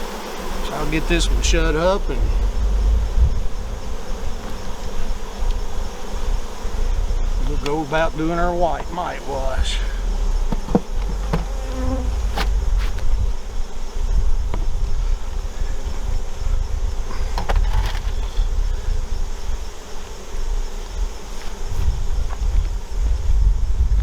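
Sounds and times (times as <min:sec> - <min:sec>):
honey bees buzzing: 0:00.0 - 0:23.3
low rumble: 0:00.9 - 0:07.6, 0:09.6 - 0:15.5
hive handling clicks and knocks: 0:03.6 - 0:09.3, 0:10.0 - 0:13.2, 0:17.1 - 0:18.4.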